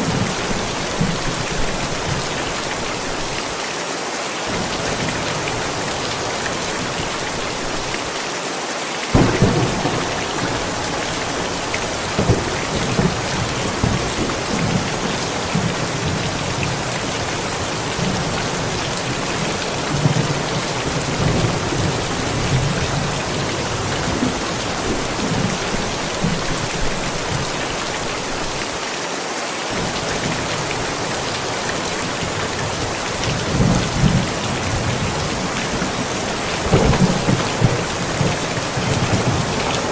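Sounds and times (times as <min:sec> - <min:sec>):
steady rain falling: 0:00.0 - 0:39.9
thunder clap and rumble: 0:09.1 - 0:28.0, 0:29.8 - 0:39.9.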